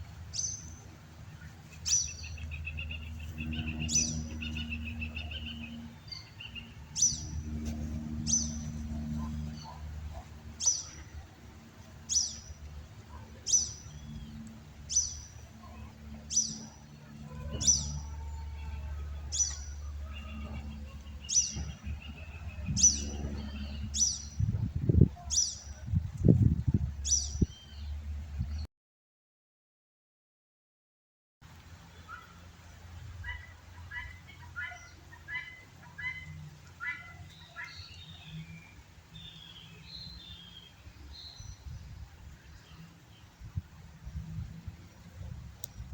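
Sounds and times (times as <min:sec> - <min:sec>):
low steady hum: 0:00.0 - 0:28.5
bird chirping high: 0:01.8 - 0:07.5.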